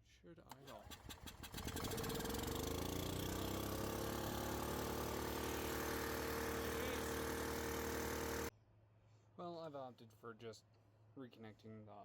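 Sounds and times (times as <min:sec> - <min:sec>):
small gas engine running: 0:00.5 - 0:08.5.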